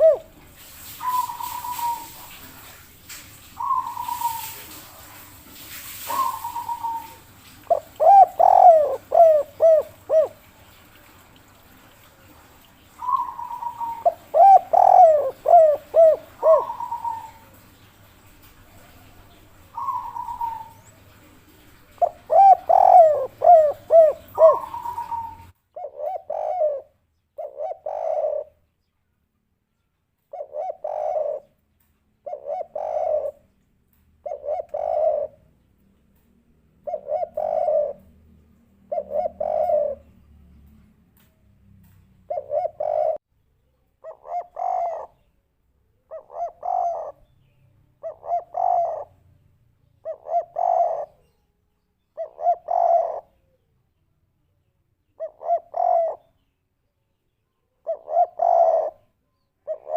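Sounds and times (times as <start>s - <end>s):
dove cooing: 0.0s - 2.8s, 3.5s - 11.6s, 12.4s - 28.6s, 30.3s - 31.6s, 32.2s - 33.5s, 34.2s - 35.5s, 36.8s - 40.2s, 42.2s - 43.2s, 44.0s - 45.3s, 46.0s - 49.2s, 50.0s - 51.3s, 52.2s - 53.6s, 55.2s - 56.3s, 57.8s - 59.9s
sliding bird calls: 0.0s - 10.5s, 13.0s - 28.5s, 34.2s - 35.4s, 42.3s - 43.2s, 44.0s - 45.2s.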